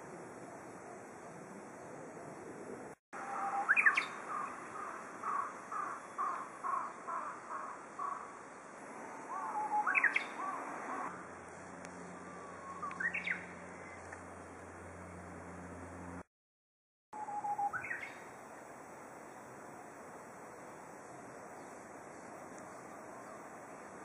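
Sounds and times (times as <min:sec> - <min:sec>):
warbler singing whistled phrases: 0:03.2 - 0:06.9, 0:09.4 - 0:11.0, 0:12.0 - 0:14.2, 0:17.2 - 0:18.3.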